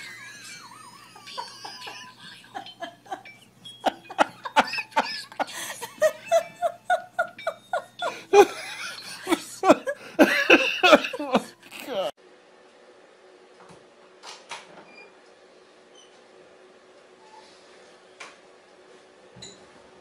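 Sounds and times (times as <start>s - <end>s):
person laughing hard: 0.0s - 12.1s.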